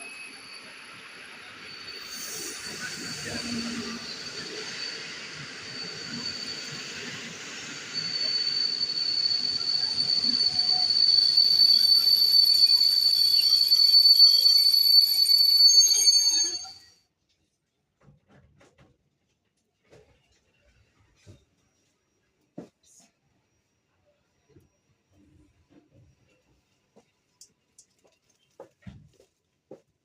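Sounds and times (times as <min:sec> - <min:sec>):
train wheels squealing: 0:00.0 - 0:17.0.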